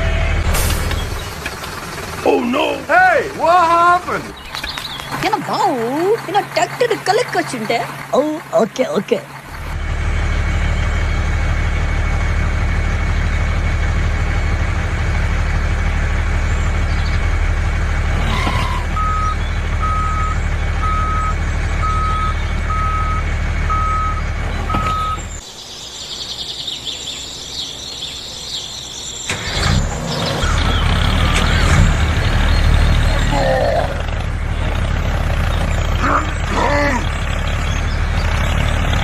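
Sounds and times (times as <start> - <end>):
heavy truck engine running: 0.0 - 25.4, 26.2 - 39.0
reversing alarm beeping: 18.3 - 25.4.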